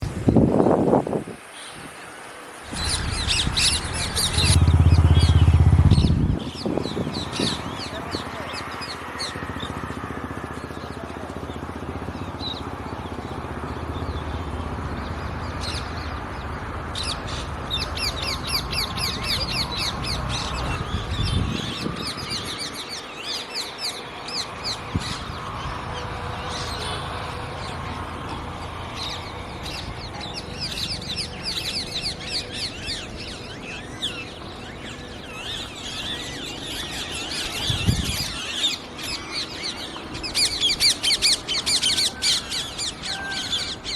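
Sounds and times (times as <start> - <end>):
low rumble: 2.7 - 8.0
parrots chirping: 2.7 - 9.7, 29.0 - 43.9.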